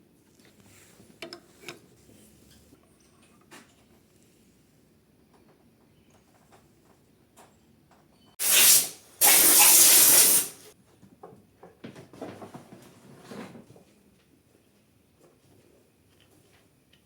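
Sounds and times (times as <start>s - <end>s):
compressed air hissing: 8.4s - 10.7s.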